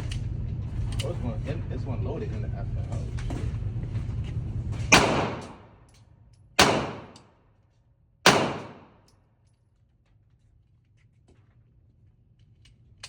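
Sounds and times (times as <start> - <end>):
gunshots echoing: 4.9 - 5.7, 6.6 - 7.2, 8.3 - 9.0.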